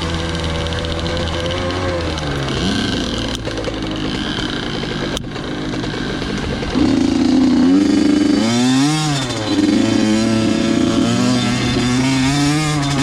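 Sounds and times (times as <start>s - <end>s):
two-stroke dirt bike engine: 0.0s - 13.0s.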